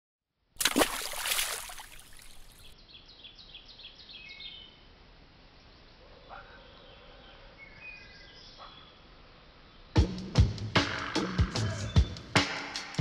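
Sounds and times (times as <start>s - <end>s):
quiet outdoor ambience: 0.4s - 10.0s
birds chirping: 1.7s - 4.8s.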